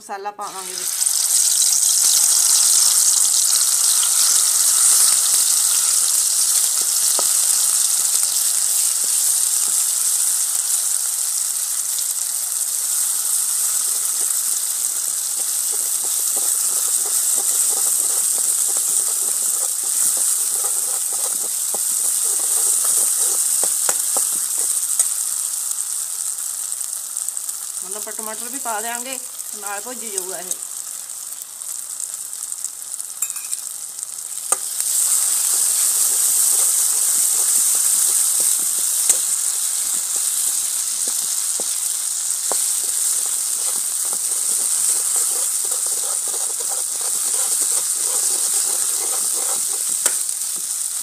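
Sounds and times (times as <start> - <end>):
spice paste sizzling in oil: 0.2 - 51.0
ladle scraping and tapping pan: 15.4 - 25.1, 42.5 - 50.2.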